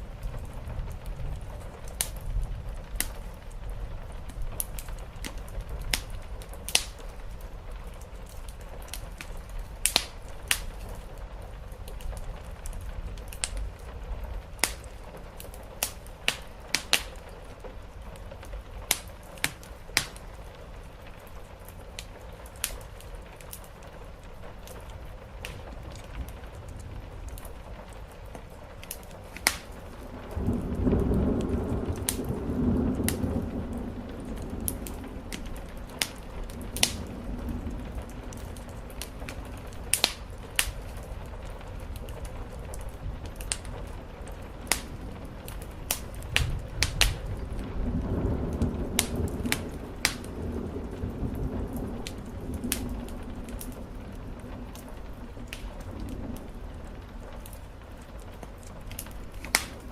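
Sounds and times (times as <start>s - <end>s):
rain on a roof: 0.0s - 59.9s
wood fire crackling: 0.0s - 59.9s
thunder rolling: 24.1s - 59.9s.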